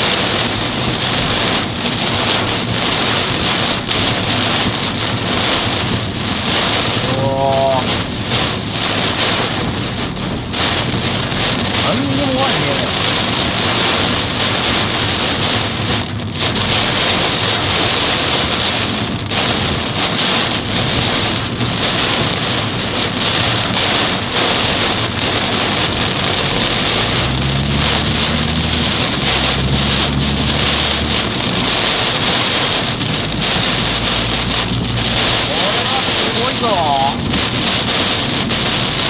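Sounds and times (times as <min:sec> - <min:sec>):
heavy rain beating on car: 0:00.0 - 0:39.0
low engine hum: 0:20.7 - 0:39.0.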